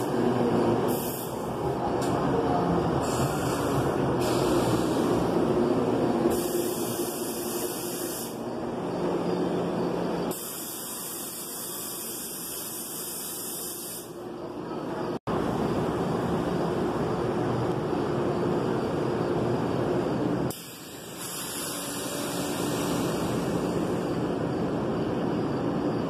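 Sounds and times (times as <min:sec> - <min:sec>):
train wheels and brakes rushing: 0:00.0 - 0:14.2, 0:18.4 - 0:26.0
airy hiss: 0:06.3 - 0:08.5.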